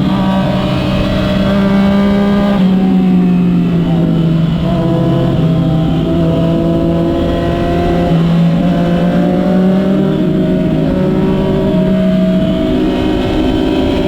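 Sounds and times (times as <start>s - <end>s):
motorcycle engine running: 0.0s - 14.0s
wind rumble on microphone: 0.0s - 14.0s.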